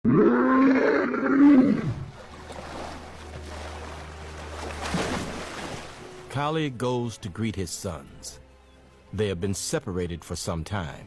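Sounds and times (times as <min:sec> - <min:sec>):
lion roaring: 0:00.0 - 0:02.1.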